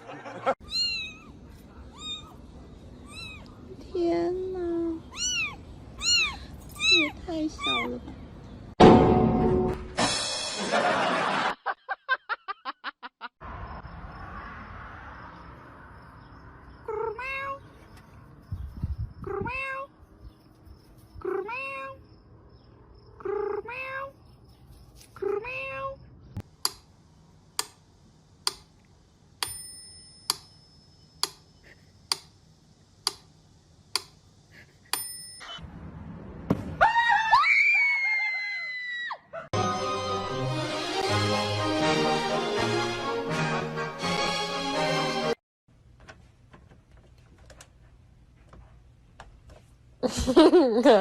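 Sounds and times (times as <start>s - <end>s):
cat meowing: 0.6s - 2.4s, 3.0s - 3.6s, 5.0s - 8.0s, 16.9s - 17.6s, 19.2s - 19.9s, 21.2s - 22.0s, 23.2s - 24.2s, 25.2s - 26.0s
sharp clicks: 28.4s - 28.7s, 32.1s - 32.4s, 33.0s - 33.3s, 33.9s - 34.2s.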